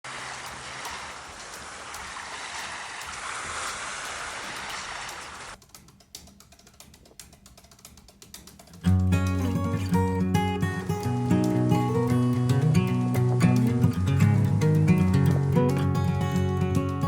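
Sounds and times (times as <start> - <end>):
sea waves surf hiss: 0.1 - 5.6
faint clicks: 0.2 - 17.0.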